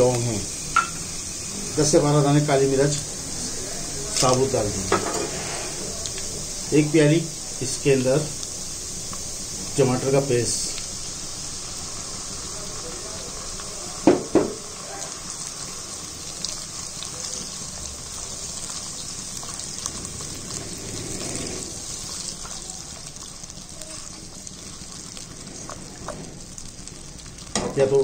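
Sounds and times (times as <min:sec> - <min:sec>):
paste sizzling in hot oil: 0:00.0 - 0:28.0
spoon stirring in pan: 0:16.5 - 0:27.7.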